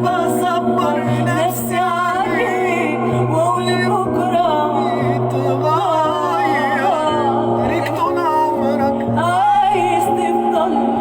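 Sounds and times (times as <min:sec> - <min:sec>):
pop song with ornamented melody: 0:00.0 - 0:11.0.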